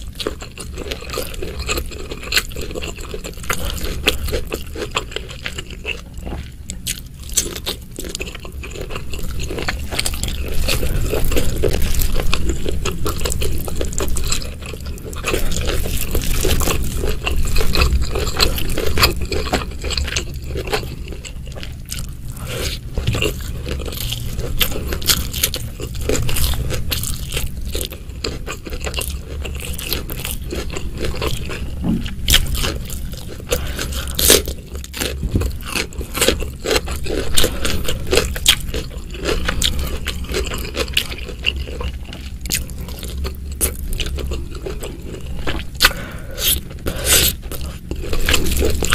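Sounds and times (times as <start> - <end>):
person chewing food: 0.0 - 48.9
wet mouth clicks and crunches: 15.1 - 48.9.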